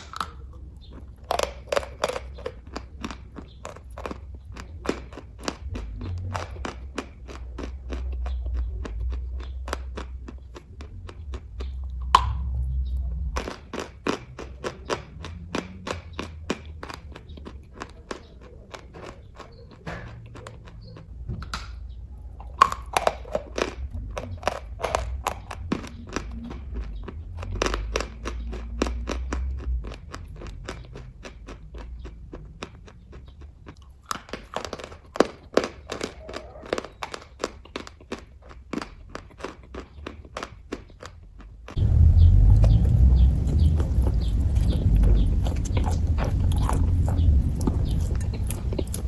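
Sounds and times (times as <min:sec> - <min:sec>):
chewing mouth clicks and smacks: 0:00.0 - 0:49.0
low rumble: 0:10.8 - 0:13.7, 0:41.8 - 0:49.0.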